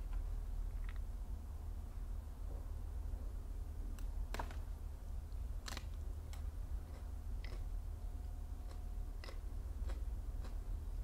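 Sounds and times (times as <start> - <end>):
steady low hum: 0.0 - 11.0
petals crunching being chewed: 5.7 - 11.0.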